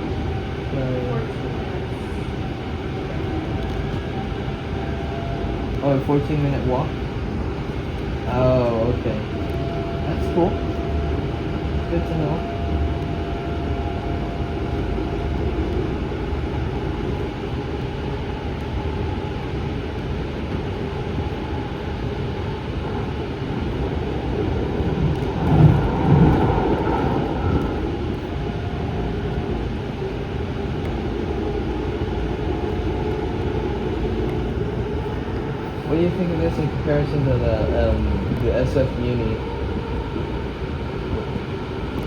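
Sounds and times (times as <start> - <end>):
rail car wheels rumbling on track: 0.0 - 42.0.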